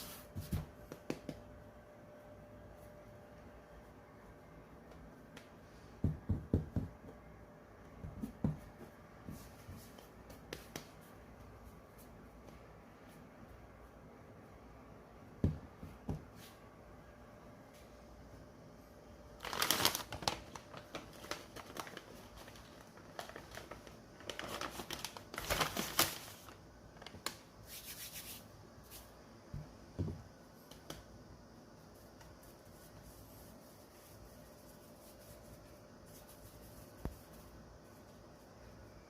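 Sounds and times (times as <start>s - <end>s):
rustling and crinkling handling: 19.4s - 27.4s.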